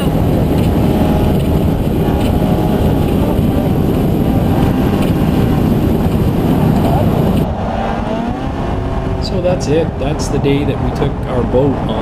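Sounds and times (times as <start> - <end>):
motor running at speed: 0.0 - 9.2
dense rush of noise: 0.0 - 12.0.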